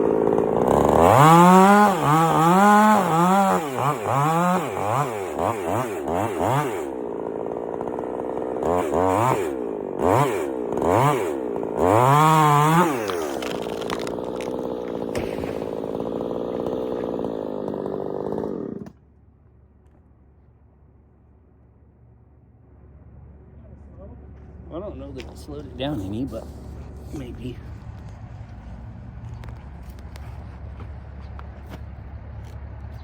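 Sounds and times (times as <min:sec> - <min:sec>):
chainsaw revving and cutting: 0:00.0 - 0:19.0.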